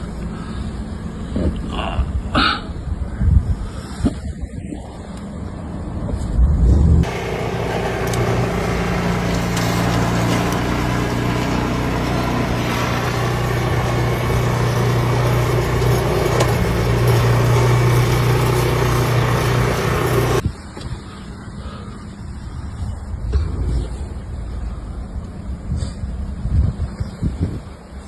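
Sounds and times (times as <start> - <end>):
engine running: 6.7 - 20.4.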